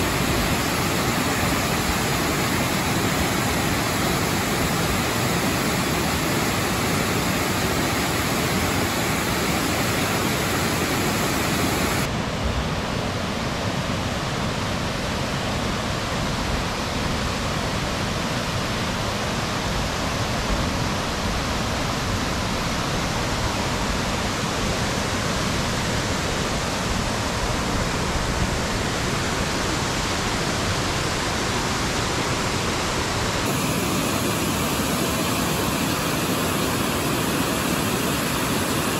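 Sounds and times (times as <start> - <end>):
waterfall rushing: 0.0 - 12.2, 21.6 - 38.9.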